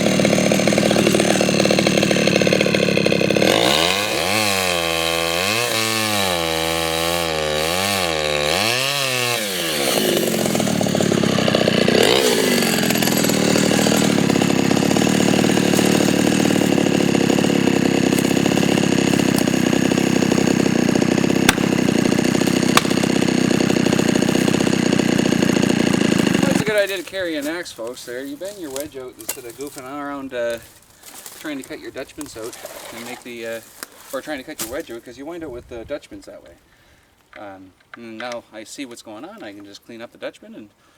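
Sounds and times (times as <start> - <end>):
chainsaw revving: 0.0 - 27.0.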